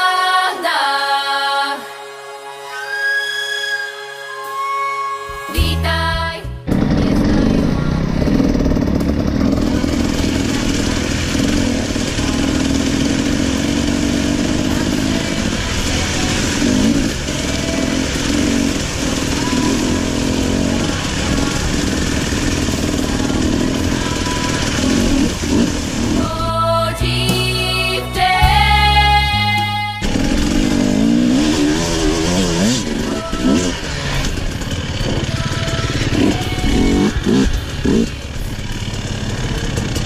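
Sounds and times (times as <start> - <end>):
dirt bike engine running: 6.6 - 40.0.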